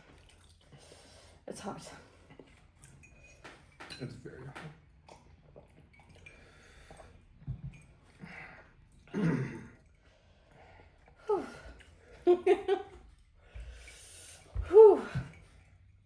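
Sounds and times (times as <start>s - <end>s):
people breathing hard and sighing: 8.1s - 8.9s, 9.9s - 12.3s, 12.9s - 16.0s.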